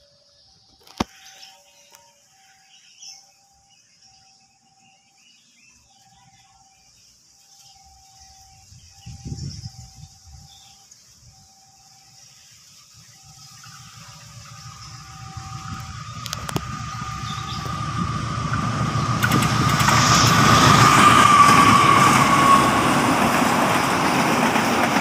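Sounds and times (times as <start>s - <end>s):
diesel train rumble: 7.8s - 25.0s
faint repeating tone: 13.0s - 19.2s.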